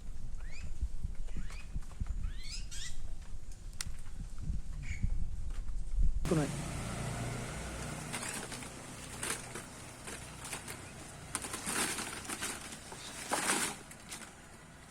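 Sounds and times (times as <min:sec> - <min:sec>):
leaves rustling: 0:06.3 - 0:14.9.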